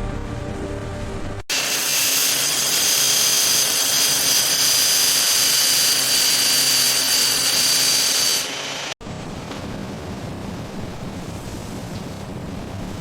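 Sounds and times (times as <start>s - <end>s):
high-speed power tool whining: 1.5s - 9.0s.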